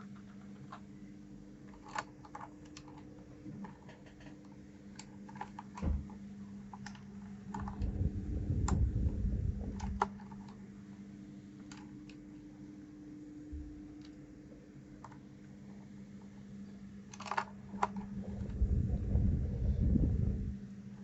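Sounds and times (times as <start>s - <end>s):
steady low hum: 0.0s - 21.0s
keyboard keys clicking: 1.6s - 5.9s, 11.6s - 12.2s
low handling rumble: 7.5s - 10.1s, 18.0s - 20.8s.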